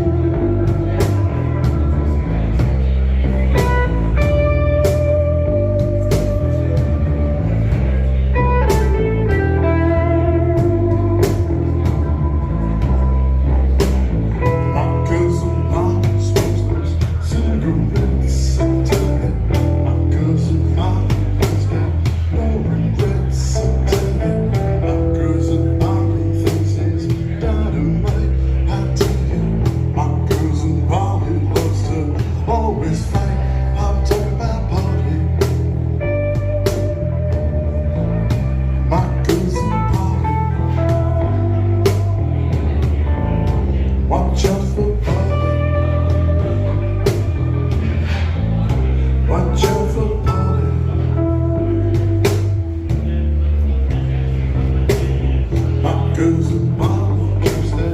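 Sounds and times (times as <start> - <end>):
blues-rock band playing: 0.0 - 57.9
lead guitar bending notes: 0.0 - 57.9.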